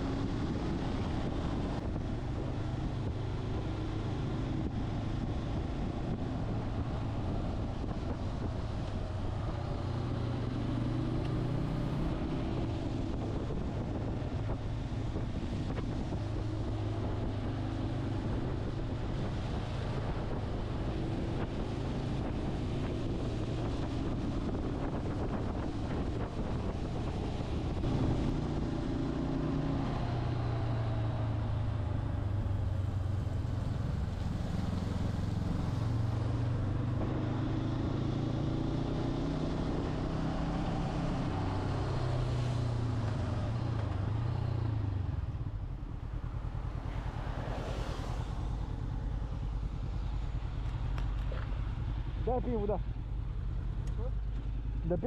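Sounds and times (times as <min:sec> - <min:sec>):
wind rushing over microphone: 0:00.0 - 0:53.6
motorcycle engine running: 0:48.3 - 0:55.0.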